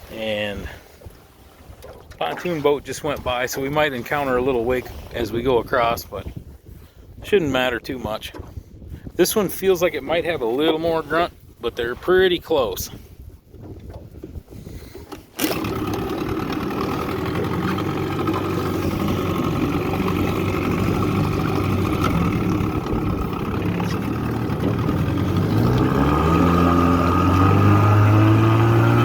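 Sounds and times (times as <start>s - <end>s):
outboard motor running: 0.0s - 6.0s, 13.4s - 29.0s.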